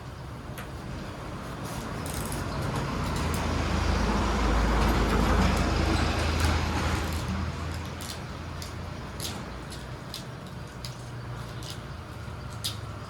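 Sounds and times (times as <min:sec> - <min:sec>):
vehicle passing by: 0:01.3 - 0:07.8.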